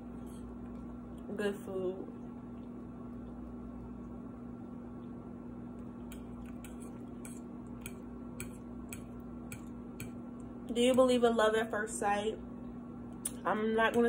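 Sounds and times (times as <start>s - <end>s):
steady low hum: 0.0s - 14.0s
chewing with mouth clicks: 5.8s - 9.7s.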